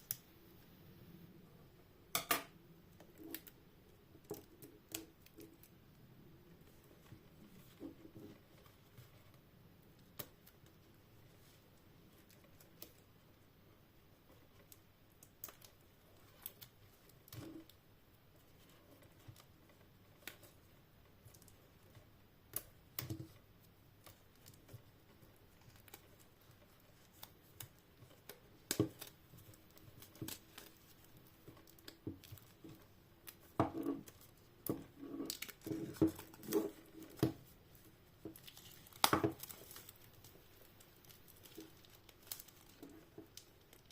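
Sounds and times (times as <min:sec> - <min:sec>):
plastic wrapping tearing and crinkling: 0:25.5 - 0:43.9.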